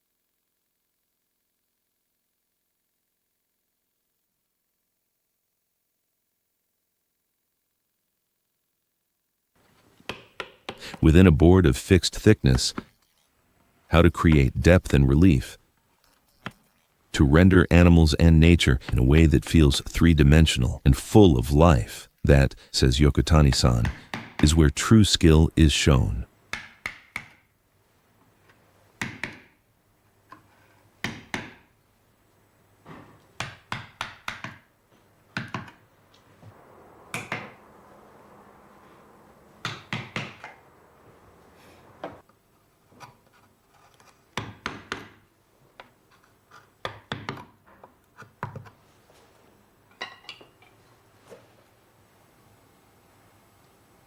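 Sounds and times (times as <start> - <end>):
hammer tapping chisel into wood: 10.1 - 10.9.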